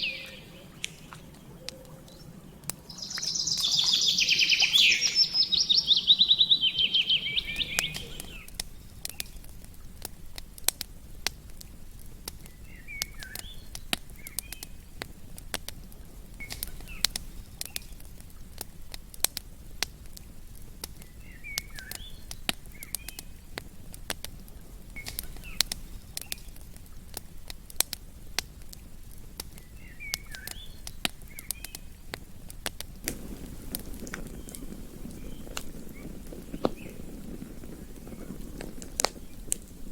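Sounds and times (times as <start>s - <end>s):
bird trilling: 0.0s - 8.6s
bird chirping calls: 0.0s - 9.4s, 12.4s - 15.0s, 21.0s - 23.5s, 24.9s - 26.5s, 29.5s - 32.1s, 33.1s - 39.9s
campfire crackling: 0.0s - 39.9s
fire popping: 0.0s - 39.9s.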